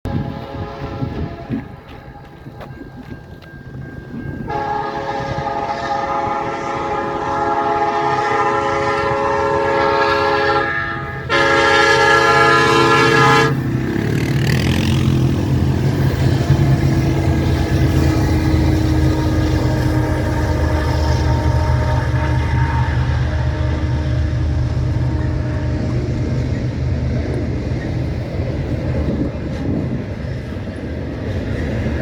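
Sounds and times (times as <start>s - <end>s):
locomotive air horn blasts: 0.0s - 2.5s, 4.5s - 14.0s, 15.9s - 26.9s
diesel locomotives rumbling: 0.0s - 32.0s.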